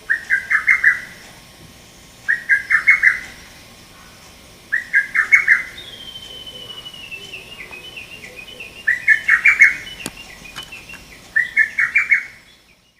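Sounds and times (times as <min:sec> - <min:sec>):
cuckoo singing sharp phrase: 0:04.7 - 0:11.9.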